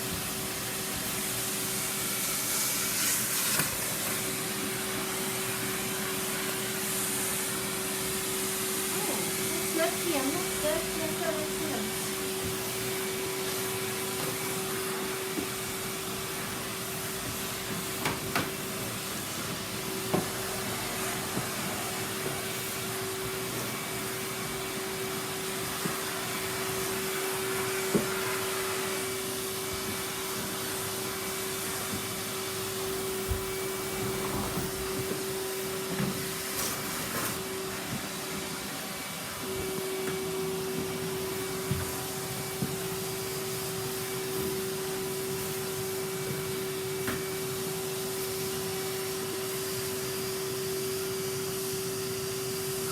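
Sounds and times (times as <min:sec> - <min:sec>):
vacuum cleaner running: 0:00.0 - 0:52.9.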